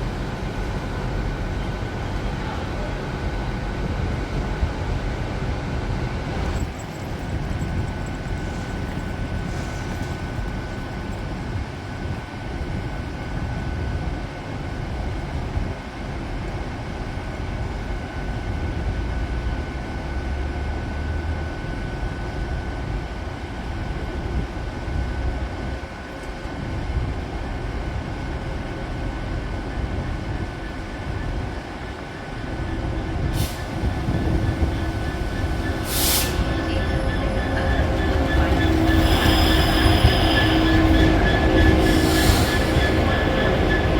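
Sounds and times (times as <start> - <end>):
diesel train rumbling: 0.0 - 43.9
high wheel squeals: 32.2 - 43.9.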